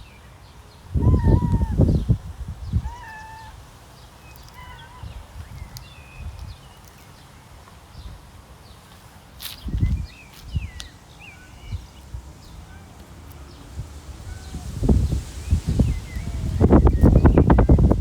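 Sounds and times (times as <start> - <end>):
cat meowing: 2.8 - 3.6.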